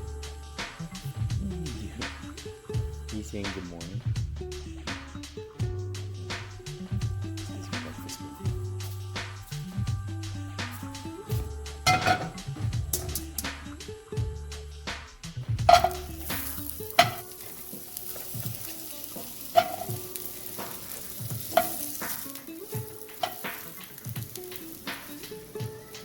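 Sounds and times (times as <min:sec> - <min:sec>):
food sizzling in a frying pan: 0:06.4 - 0:09.9, 0:10.6 - 0:13.7, 0:15.5 - 0:26.0
utensil knocking against pan: 0:11.9 - 0:13.2, 0:15.7 - 0:25.4.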